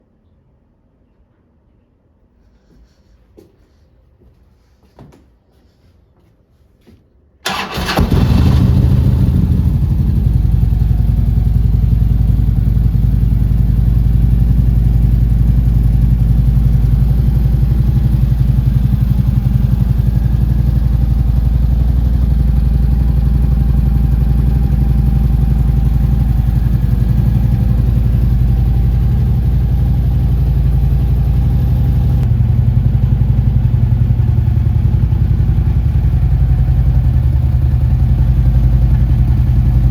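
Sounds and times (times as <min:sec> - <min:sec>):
motorcycle engine starting and idling: 0:07.4 - 0:39.9.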